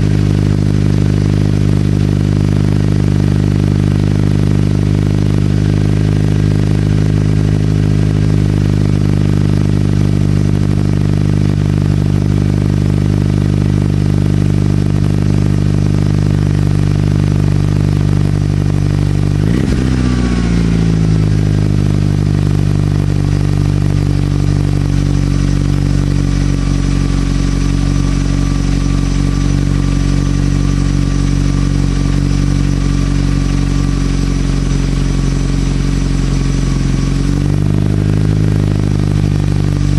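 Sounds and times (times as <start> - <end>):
car engine idling: 0.0 - 39.9
engine rev blip: 17.5 - 39.9.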